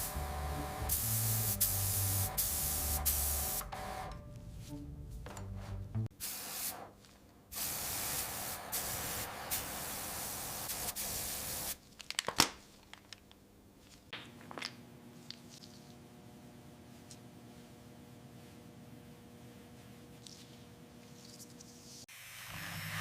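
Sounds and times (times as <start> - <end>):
spray paint hissing: 0.0 - 3.7, 6.2 - 6.9, 7.5 - 11.8.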